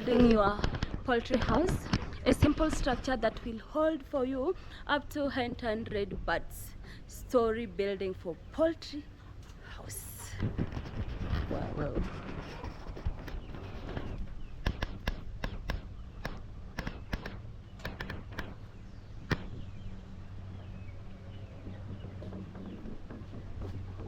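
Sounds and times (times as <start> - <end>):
steady low hum: 0.0 - 24.0
sharp irregular taps and clicks: 13.0 - 18.6, 19.2 - 19.6.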